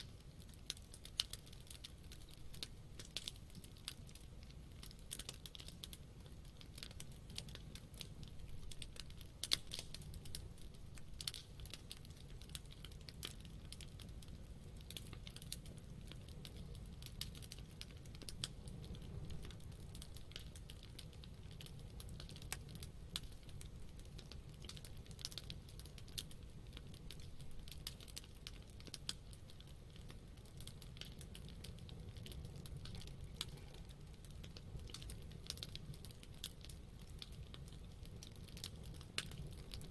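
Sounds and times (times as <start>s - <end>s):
campfire crackling and popping: 0.0s - 39.9s
low rumble of flames: 0.0s - 39.9s.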